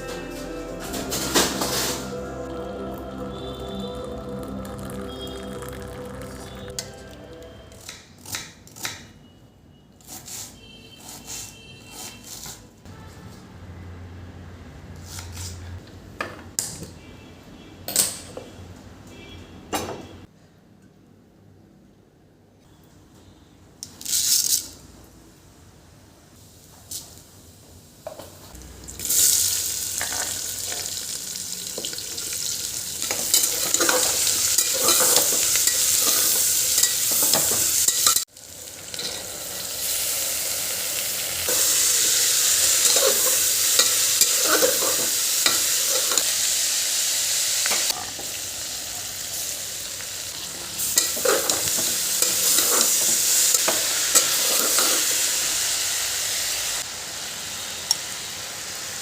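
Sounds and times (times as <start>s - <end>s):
food sizzling in a pan: 0.0s - 7.9s, 28.5s - 59.0s
spatula scraping a pan: 33.1s - 38.3s, 42.8s - 46.3s, 51.0s - 55.2s.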